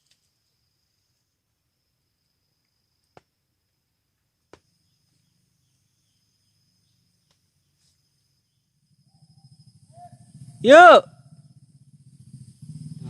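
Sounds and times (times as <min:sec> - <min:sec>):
high-pitched insect chirring: 0:04.7 - 0:13.0.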